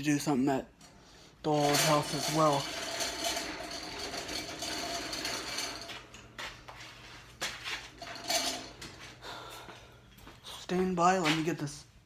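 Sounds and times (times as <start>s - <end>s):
metallic clanks: 0.8s - 6.4s, 7.9s - 9.2s
metal rattling and rasping: 0.8s - 9.3s.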